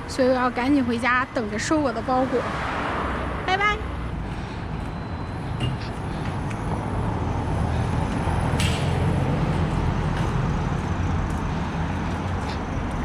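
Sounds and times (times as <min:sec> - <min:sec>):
road noise: 0:00.0 - 0:13.0.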